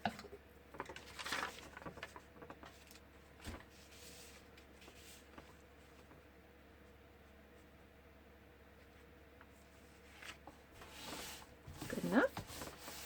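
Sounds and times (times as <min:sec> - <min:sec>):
paper rustling and rubbing: 0:00.7 - 0:06.2, 0:09.5 - 0:13.0.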